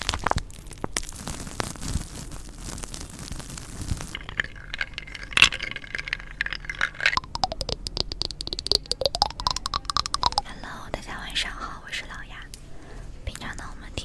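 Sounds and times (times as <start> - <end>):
scraping and rubbing of hard objects: 0.0 - 10.6
quick irregular clicks: 5.0 - 10.6.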